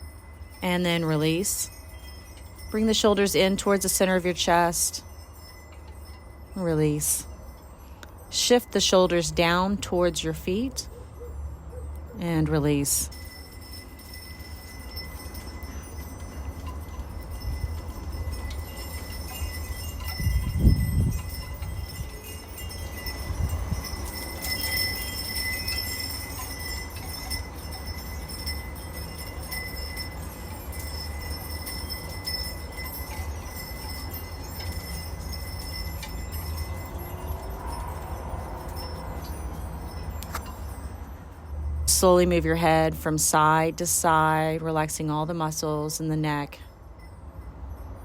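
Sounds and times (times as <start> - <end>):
wind chimes ringing: 0.0 - 48.0
wind rumble on microphone: 16.5 - 25.8.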